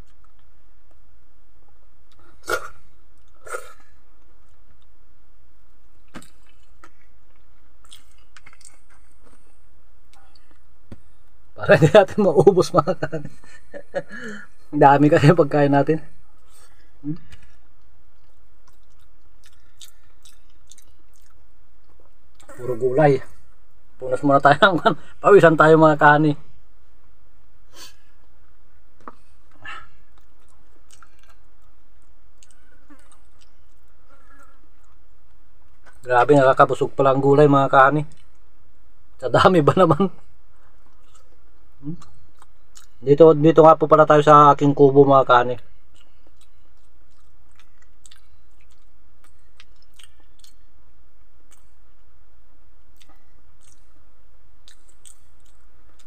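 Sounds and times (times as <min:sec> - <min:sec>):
man chewing soft food: 0:00.0 - 0:01.0, 0:01.7 - 0:05.0, 0:05.6 - 0:11.5, 0:16.3 - 0:22.8, 0:27.7 - 0:36.1, 0:40.2 - 0:43.0, 0:45.6 - 0:56.0
low hum: 0:00.0 - 0:56.0
mouth clicks and smacks: 0:06.0 - 0:11.1, 0:16.4 - 0:22.6, 0:29.0 - 0:36.1, 0:40.7 - 0:43.0, 0:45.6 - 0:50.7, 0:51.4 - 0:52.0, 0:52.9 - 0:54.0, 0:54.6 - 0:56.0
mouth smacks while chewing: 0:45.9 - 0:50.6, 0:52.9 - 0:54.0, 0:54.6 - 0:56.0.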